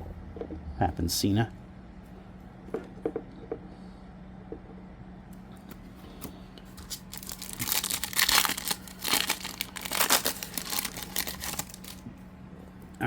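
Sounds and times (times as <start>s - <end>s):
wrapper tearing and crinkling: 6.8s - 12.0s.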